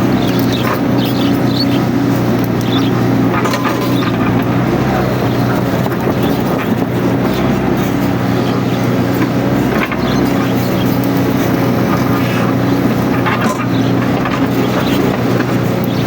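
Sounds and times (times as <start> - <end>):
excavator diesel engine running: 0.0 - 16.0
scattered clicks: 0.2 - 11.8.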